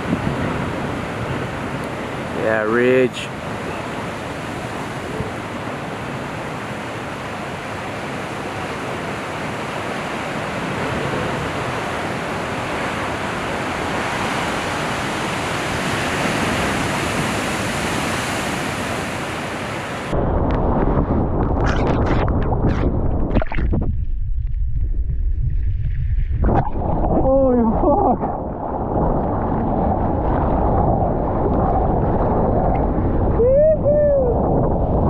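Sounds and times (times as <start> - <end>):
ocean surf rushing: 0.0 - 21.5
wind on microphone: 0.0 - 35.0
muffled low rumble: 20.2 - 35.0.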